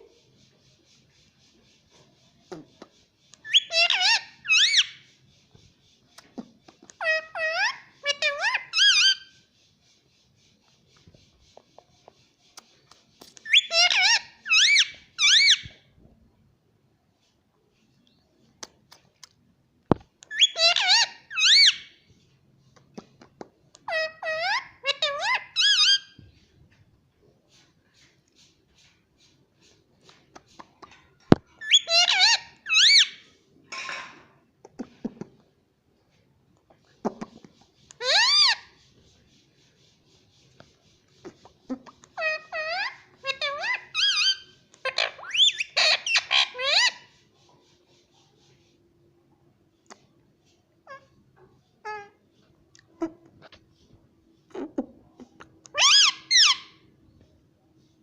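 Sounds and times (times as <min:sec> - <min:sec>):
parrot squeaky calls: 0:03.4 - 0:05.1, 0:07.0 - 0:09.4, 0:13.4 - 0:15.8, 0:20.3 - 0:22.0, 0:23.8 - 0:26.2, 0:31.6 - 0:33.3, 0:37.9 - 0:38.8, 0:41.4 - 0:47.2, 0:51.8 - 0:52.2, 0:55.6 - 0:56.8
parrot raspy screech: 0:55.7 - 0:56.7.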